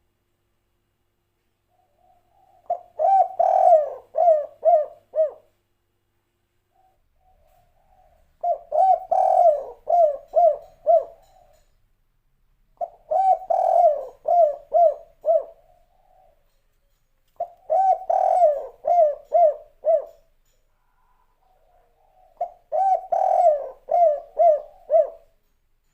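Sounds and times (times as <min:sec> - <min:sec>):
dove cooing: 0:01.7 - 0:05.6, 0:06.7 - 0:11.7, 0:12.8 - 0:16.6, 0:17.4 - 0:25.4.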